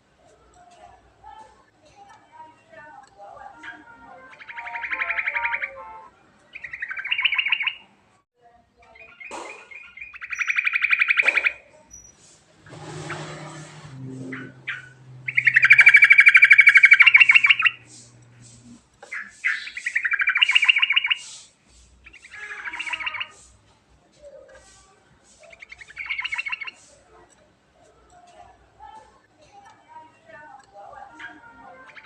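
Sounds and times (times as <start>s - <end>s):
bulbul trilling song: 3.4s - 7.9s, 9.0s - 12.1s, 12.7s - 23.6s, 25.3s - 27.0s, 30.6s - 32.0s.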